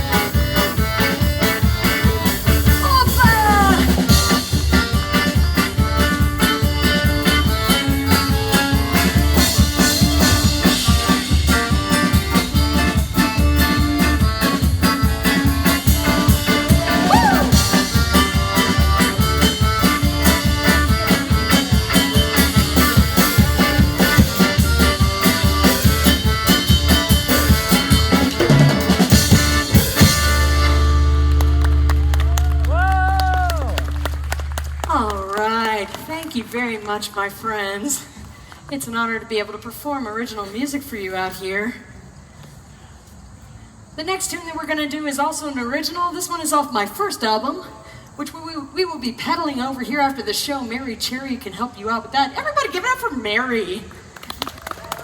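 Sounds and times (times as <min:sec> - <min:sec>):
drum kit beat: 0:00.0 - 0:32.1
folk dance band playing: 0:00.0 - 0:35.9.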